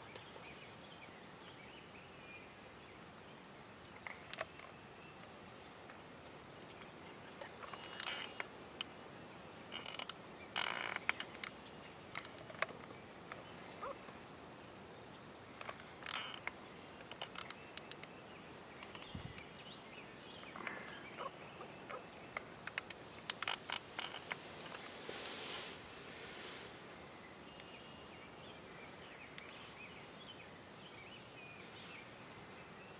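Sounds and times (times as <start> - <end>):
soft clicks and rustles: 3.1 - 9.0, 9.7 - 14.2, 15.5 - 27.0
faint turkey calls: 13.4 - 14.2, 20.4 - 22.6.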